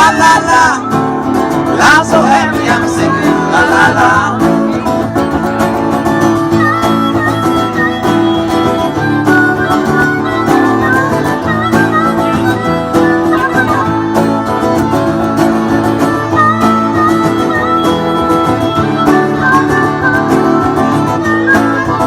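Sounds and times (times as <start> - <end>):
sliding lead melody: 0.0 - 22.0
strummed acoustic guitar: 0.0 - 22.0.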